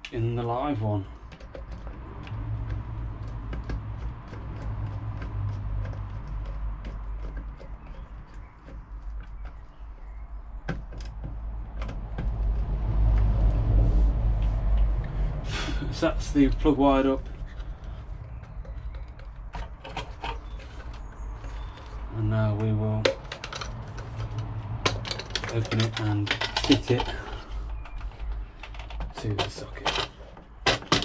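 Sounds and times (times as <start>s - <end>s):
steady low rumble: 10.0s - 28.6s.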